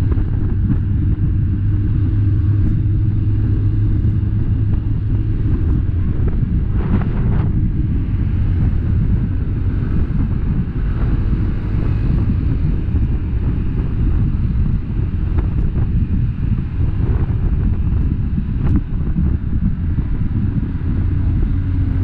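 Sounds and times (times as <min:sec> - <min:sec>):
engine and road rumble: 0:00.0 - 0:22.0
wind buffeting microphone: 0:00.0 - 0:22.0.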